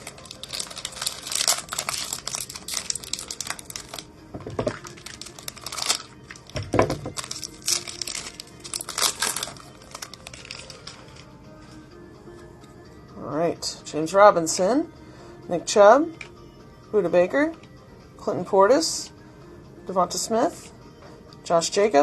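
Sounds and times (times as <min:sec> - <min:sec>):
foil wrapper tearing and crinkling: 0:00.0 - 0:04.1, 0:04.7 - 0:11.2.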